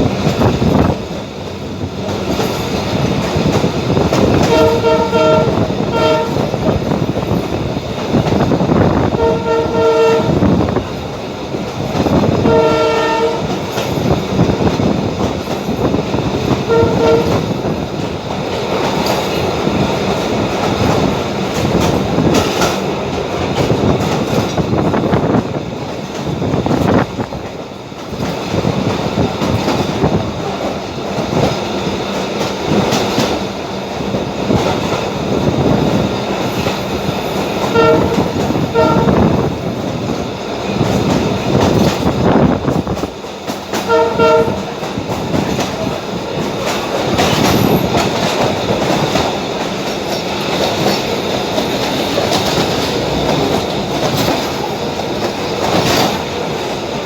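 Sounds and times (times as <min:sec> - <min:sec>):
train rumbling on rails: 0:00.0 - 0:57.0
train horn short blasts: 0:04.4 - 0:06.6, 0:09.1 - 0:10.6, 0:12.3 - 0:13.6, 0:16.6 - 0:17.5, 0:37.6 - 0:39.4, 0:43.8 - 0:44.8.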